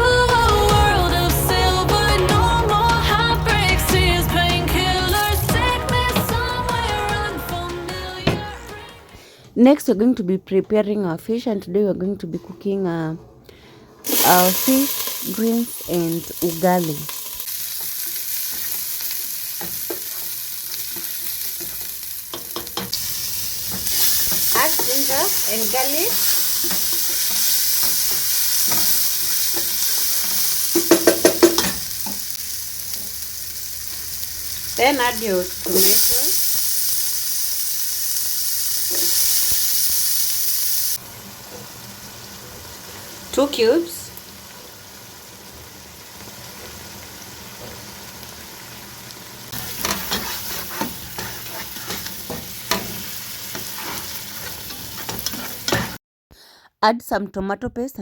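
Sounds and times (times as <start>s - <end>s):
food sizzling in hot oil: 14.0s - 56.0s
stirring in a pan: 14.1s - 34.2s, 49.5s - 56.0s
spoon scraping against pot: 49.6s - 56.0s.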